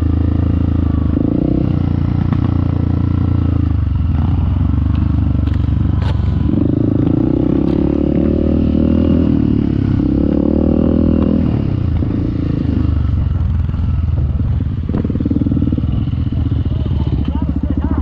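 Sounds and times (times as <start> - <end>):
off-road motorcycle engine revving: 0.0 - 18.0.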